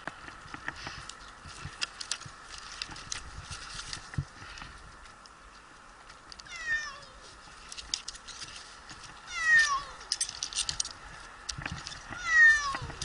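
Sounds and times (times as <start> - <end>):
cat meowing: 6.5 - 7.2, 9.3 - 10.1, 12.2 - 13.0.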